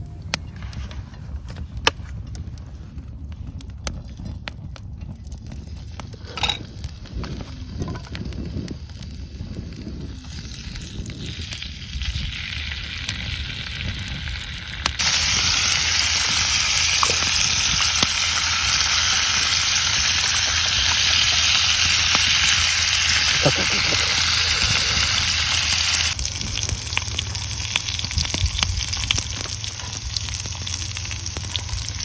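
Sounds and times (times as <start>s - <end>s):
food sizzling on a hot pan: 6.4s - 32.0s.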